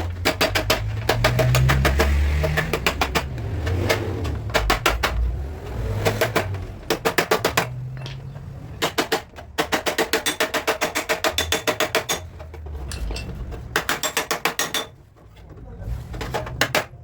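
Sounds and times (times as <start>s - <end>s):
hammer tapping on sheet metal: 0.1s - 5.2s, 8.8s - 12.3s, 13.7s - 15.0s.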